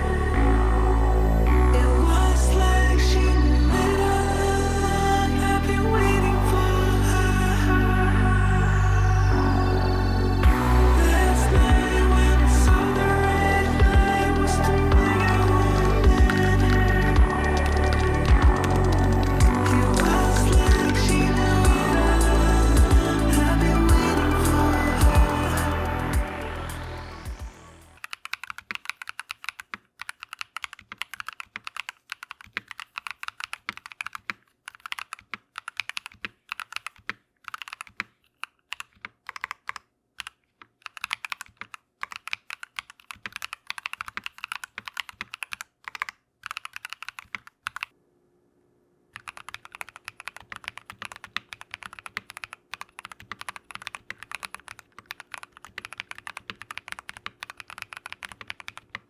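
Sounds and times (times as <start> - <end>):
typing on mechanical keyboard: 12.7 - 26.2, 28.0 - 48.0, 49.2 - 59.0.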